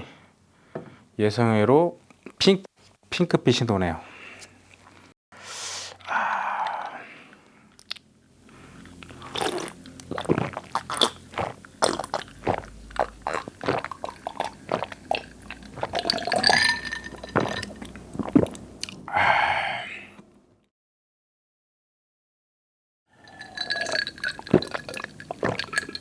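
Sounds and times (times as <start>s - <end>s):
breathy exhale: 5.4s - 7.7s, 19.1s - 20.2s
person gulping soft drink: 5.9s - 7.0s, 9.0s - 19.1s, 23.2s - 26.0s.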